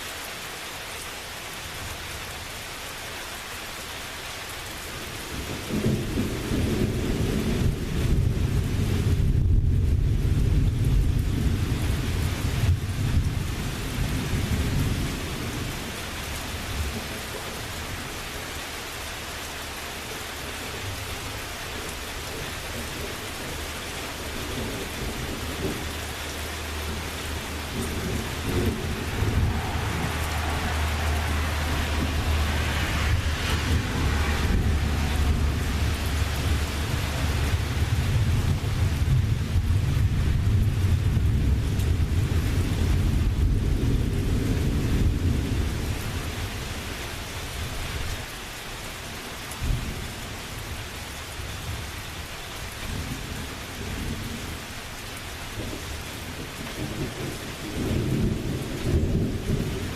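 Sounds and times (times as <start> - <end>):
steady rain: 0.0 - 59.9
rolling thunder: 5.4 - 15.8, 24.5 - 46.0.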